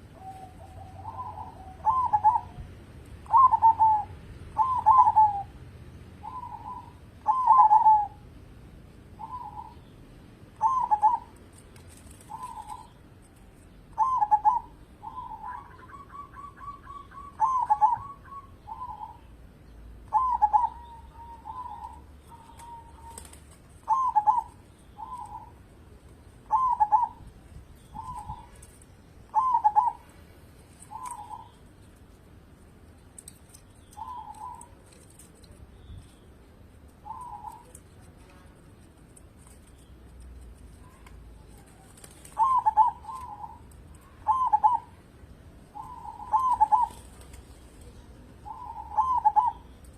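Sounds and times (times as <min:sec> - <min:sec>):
dove cooing: 0:00.0 - 0:05.6, 0:06.2 - 0:08.2, 0:09.2 - 0:09.9, 0:10.6 - 0:13.1, 0:13.9 - 0:19.3, 0:20.1 - 0:25.6, 0:26.4 - 0:30.2, 0:30.8 - 0:31.6, 0:33.8 - 0:35.6, 0:37.0 - 0:38.4, 0:40.7 - 0:49.9.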